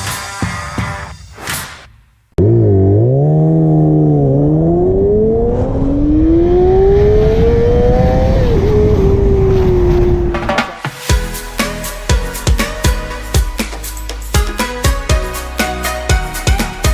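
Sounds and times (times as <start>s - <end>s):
motorcycle engine accelerating: 2.4s - 10.8s.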